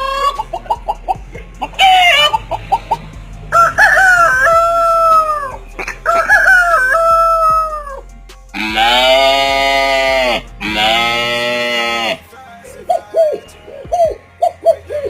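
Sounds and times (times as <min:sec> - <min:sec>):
rooster crowing: 0:01.7 - 0:08.0, 0:08.6 - 0:12.2.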